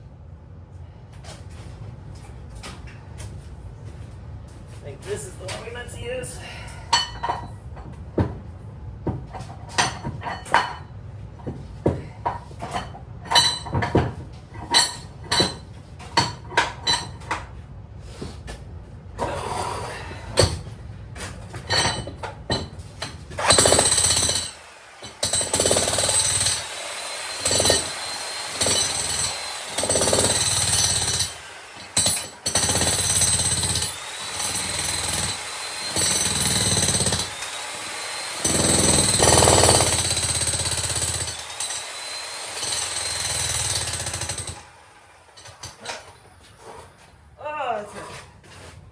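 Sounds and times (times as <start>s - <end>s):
demolition hammer breaking concrete: 21.5s - 44.7s.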